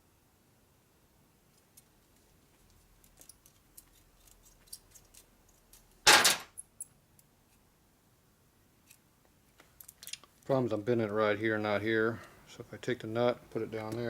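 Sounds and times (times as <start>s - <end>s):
metal parts clicking and tapping: 2.7s - 7.3s, 9.8s - 10.3s.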